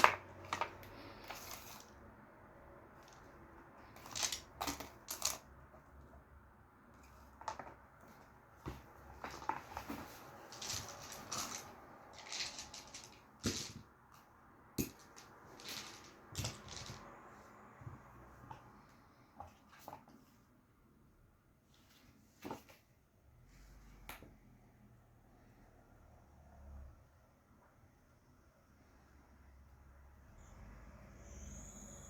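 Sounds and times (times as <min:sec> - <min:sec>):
cardboard and paper rustling: 0:00.0 - 0:02.0, 0:07.0 - 0:13.9, 0:14.8 - 0:17.2.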